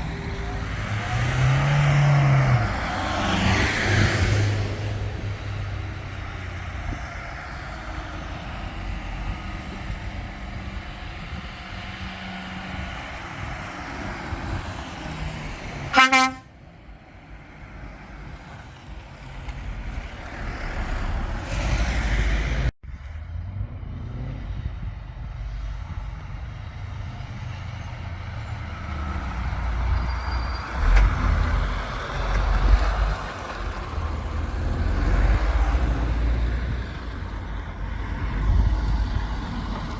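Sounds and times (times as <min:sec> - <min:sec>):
truck diesel engines running: 0:00.0 - 0:39.9
truck horn blast: 0:15.9 - 0:16.5.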